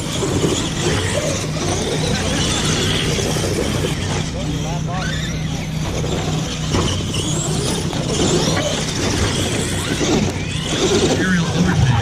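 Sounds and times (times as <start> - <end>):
electric toy truck motors whining: 0.0 - 12.0
steady low hum: 0.0 - 12.0.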